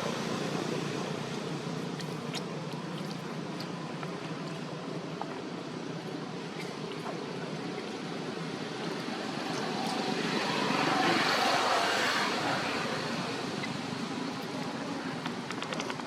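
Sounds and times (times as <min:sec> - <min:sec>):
vehicle passing by: 0:08.8 - 0:13.7.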